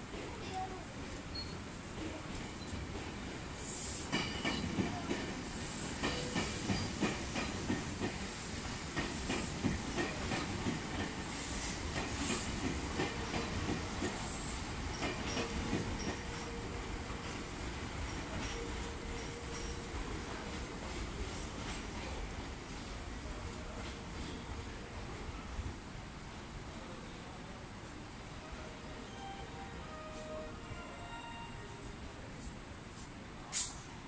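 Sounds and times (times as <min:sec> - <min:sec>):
train wheels clattering on rails: 0:00.0 - 0:22.5
air hiss bursts: 0:03.6 - 0:04.2, 0:05.4 - 0:06.9, 0:08.2 - 0:09.6, 0:11.2 - 0:12.7, 0:14.0 - 0:14.8, 0:33.0 - 0:33.8.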